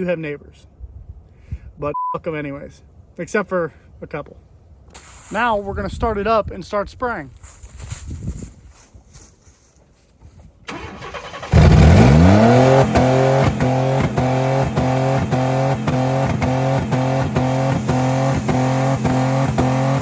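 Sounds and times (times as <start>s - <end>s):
engine bouncing off rev limiter: 10.7s - 20.0s
engine cranking and revving: 10.7s - 20.0s.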